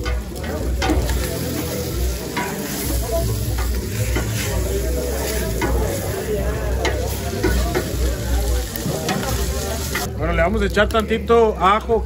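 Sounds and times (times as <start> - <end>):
spatula scraping and knocking pot: 0.0 - 6.1, 6.8 - 8.1
food sizzling in oil: 0.0 - 10.2.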